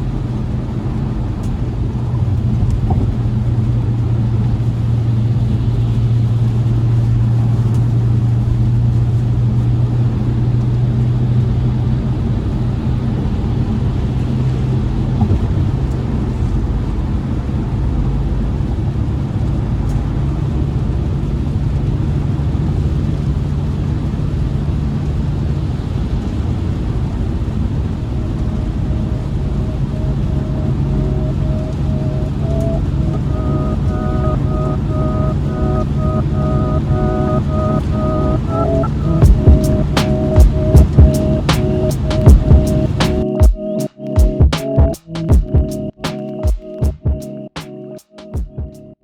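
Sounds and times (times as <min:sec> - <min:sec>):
car engine droning: 0:00.0 - 0:43.4
road noise: 0:00.0 - 0:44.2.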